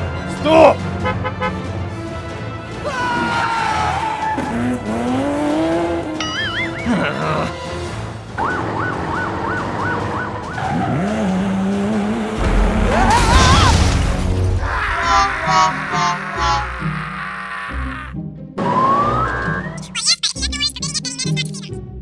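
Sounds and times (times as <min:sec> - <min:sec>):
children's background music: 0:03.9 - 0:10.9, 0:14.6 - 0:22.0
loud crash: 0:12.4 - 0:16.5.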